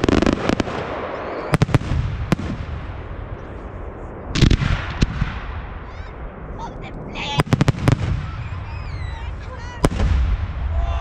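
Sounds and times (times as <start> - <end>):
firework crackle: 0.0 - 10.9.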